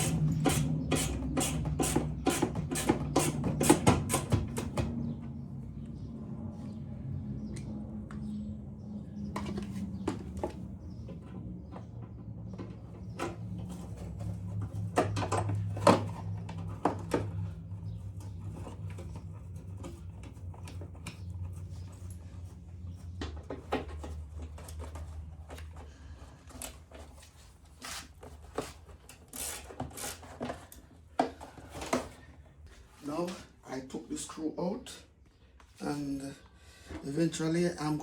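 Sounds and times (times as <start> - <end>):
hand tools clicking and knocking: 0.0 - 4.9
low steady hum: 0.0 - 28.6.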